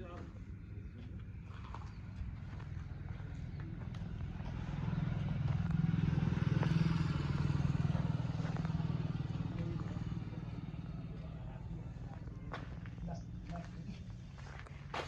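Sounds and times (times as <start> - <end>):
tractor diesel engine running: 1.8 - 15.0.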